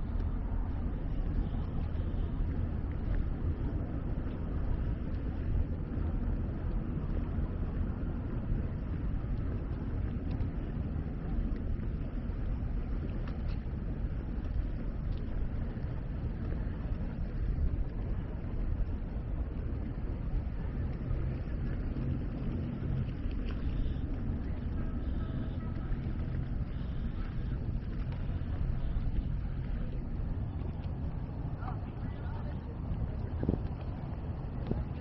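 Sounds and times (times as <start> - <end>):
city ambience rumble: 0.0 - 35.0
faint clicks: 9.3 - 19.0, 19.6 - 35.0.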